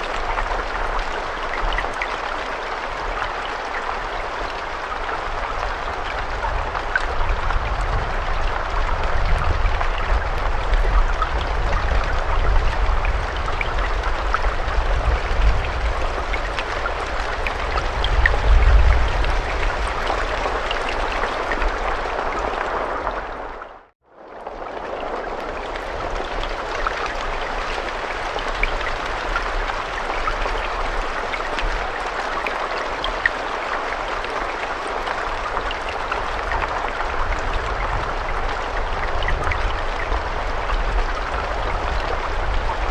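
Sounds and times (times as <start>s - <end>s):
raindrops ticking: 24.3s - 42.9s.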